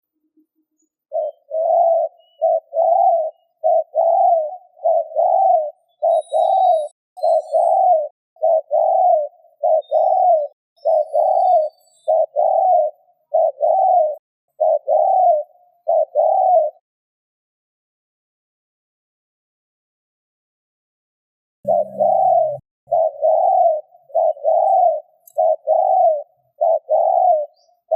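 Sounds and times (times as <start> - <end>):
dove cooing: 1.1 - 16.8, 21.7 - 27.9.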